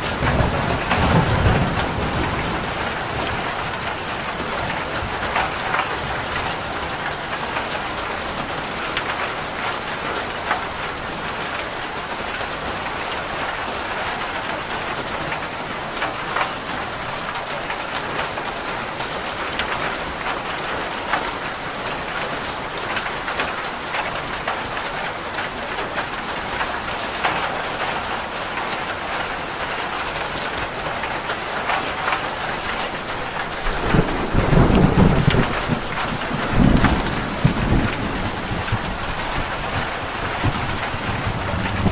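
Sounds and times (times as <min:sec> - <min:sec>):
low rumble of thunder: 0:00.0 - 0:06.6, 0:33.3 - 0:41.9
rain falling on a roof: 0:00.0 - 0:41.9.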